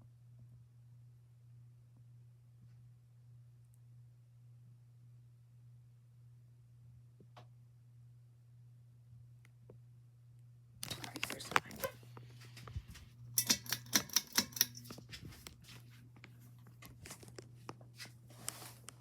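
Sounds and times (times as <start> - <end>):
ceiling fan motor humming: 10.8 - 19.0.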